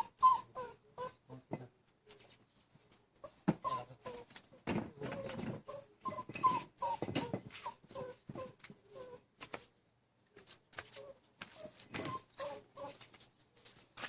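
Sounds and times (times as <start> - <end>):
dog whimpering and whining: 0.0 - 1.2, 3.2 - 4.3, 5.0 - 9.2, 10.8 - 13.0.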